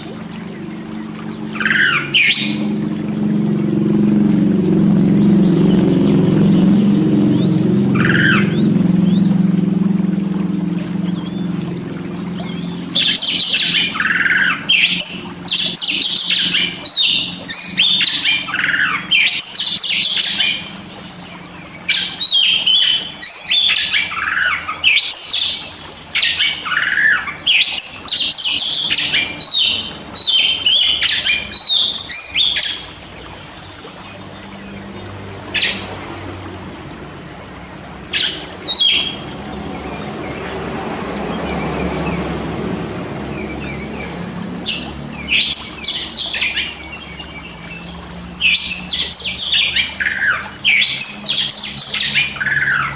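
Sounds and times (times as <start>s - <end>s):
low steady hum: 0.0s - 52.9s
magpie-robin singing: 1.6s - 2.7s.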